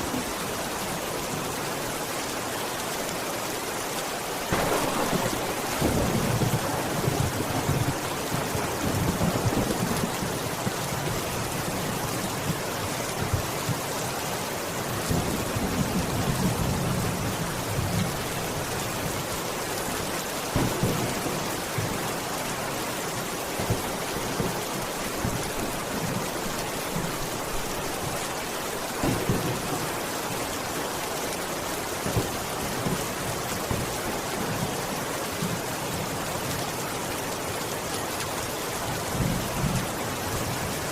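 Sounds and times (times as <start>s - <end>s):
heavy rain falling: 0.0s - 40.9s
sharp raindrop hits: 4.4s - 10.8s, 20.5s - 22.3s, 28.7s - 30.6s
low rolling thunder: 4.5s - 11.1s.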